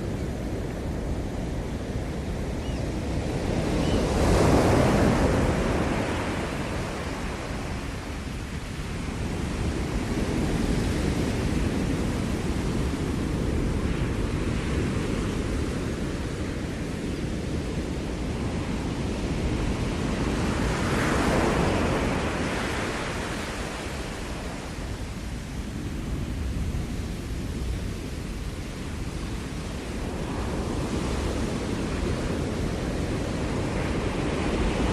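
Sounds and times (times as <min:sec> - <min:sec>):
ocean surf breaking: 0:03.0 - 0:09.2.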